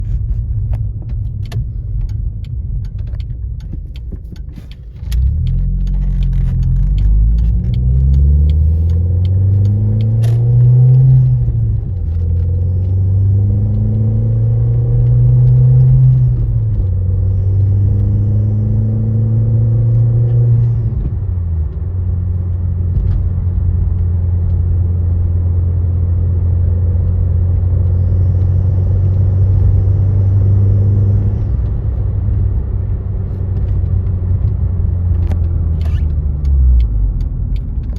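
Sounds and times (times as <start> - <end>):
car engine accelerating: 0.0 - 37.9
road noise rumble: 0.0 - 37.9
small clicks: 0.8 - 13.0.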